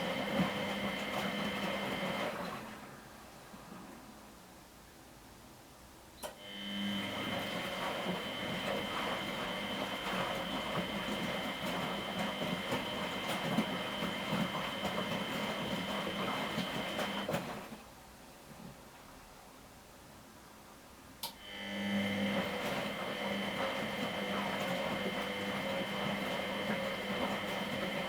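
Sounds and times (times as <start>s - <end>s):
washing machine running: 0.0s - 4.0s, 6.3s - 17.9s, 21.3s - 28.0s.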